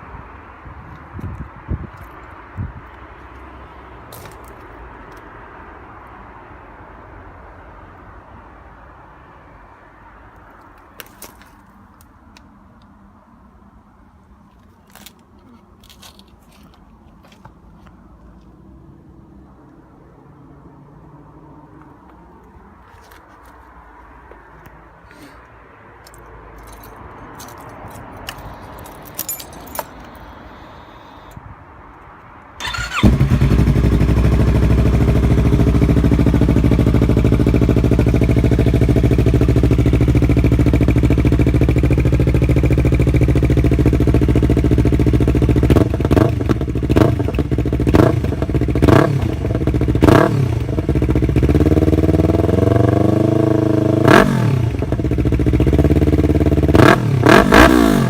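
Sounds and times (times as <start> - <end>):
motorcycle engine idling: 32.6 - 52.4
motorcycle engine revving: 32.6 - 58.0.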